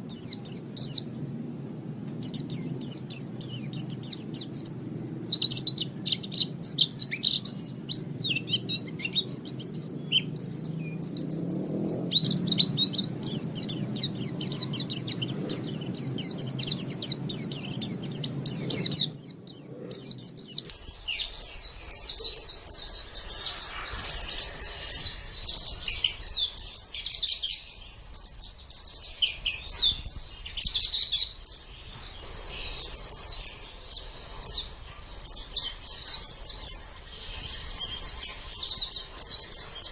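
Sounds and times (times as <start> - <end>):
low background rumble: 0.0 - 21.0
bird twittering song: 0.0 - 39.9.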